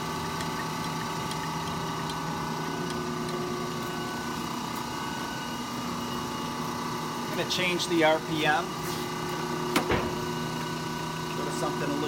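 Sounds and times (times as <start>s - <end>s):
lathe humming: 0.0s - 12.0s.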